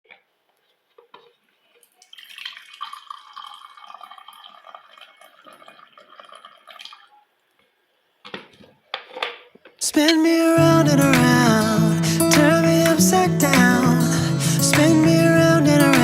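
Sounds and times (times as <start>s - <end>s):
tap water running into sink: 2.0s - 7.1s.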